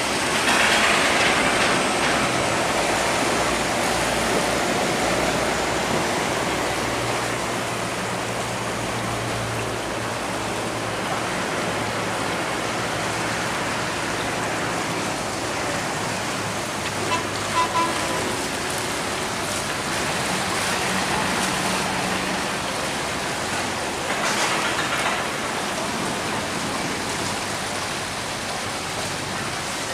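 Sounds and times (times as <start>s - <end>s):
boat engine droning: 0.0s - 29.9s
water rushing through sluice gate: 0.0s - 29.9s
short horn toots: 17.1s - 18.4s.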